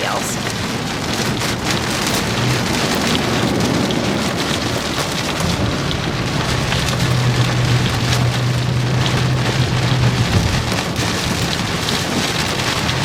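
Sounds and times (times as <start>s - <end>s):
rain pattering on car: 0.0s - 13.0s
low vehicle drone: 0.4s - 13.0s.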